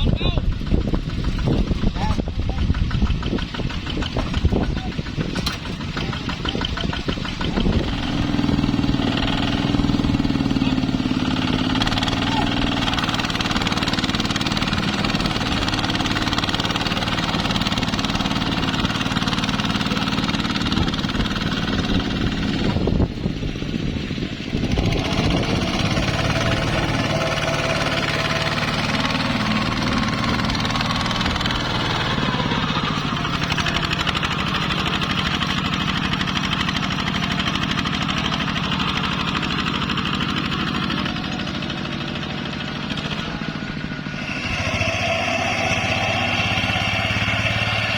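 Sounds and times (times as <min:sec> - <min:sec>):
tractor engine knocking: 0:00.0 - 0:47.9.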